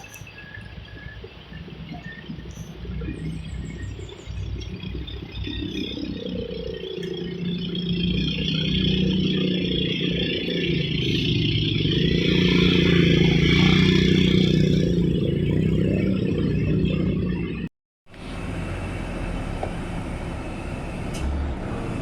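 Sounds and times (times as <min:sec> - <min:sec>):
diesel truck engine under load: 0:00.0 - 0:22.0.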